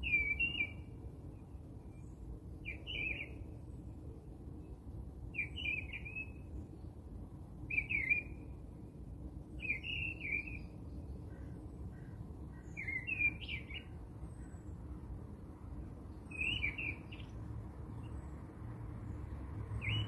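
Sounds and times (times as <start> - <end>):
low background noise: 0.0 - 20.0
small bird chirping: 1.9 - 3.4, 9.6 - 14.8, 16.1 - 18.3.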